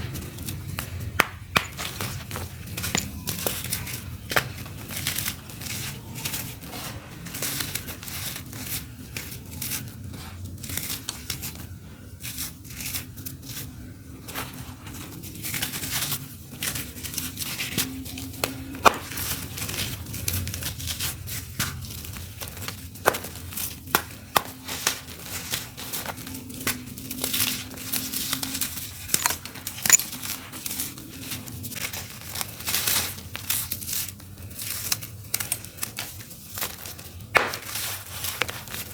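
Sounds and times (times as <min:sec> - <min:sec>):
dry dirt crumbling onto floor: 0:00.5 - 0:04.7.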